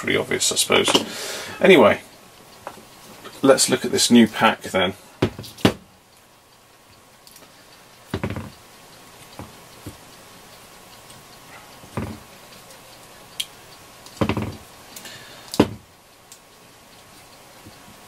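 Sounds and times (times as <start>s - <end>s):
parts knocking on a workbench: 5.2s - 5.8s, 8.1s - 8.6s, 11.9s - 12.3s, 14.2s - 14.6s, 15.6s - 15.9s.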